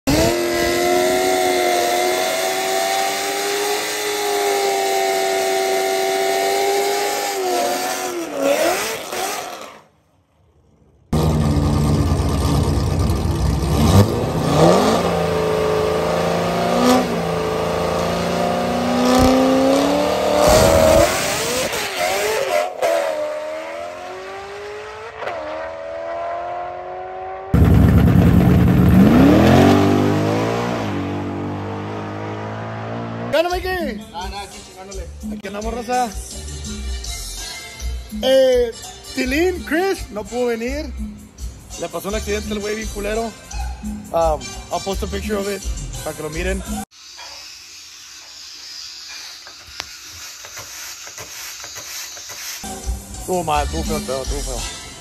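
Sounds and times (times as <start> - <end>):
car engine revving loudly: 0.0 - 9.8, 11.2 - 33.4
pickup truck engine running: 11.2 - 13.8, 27.6 - 29.4.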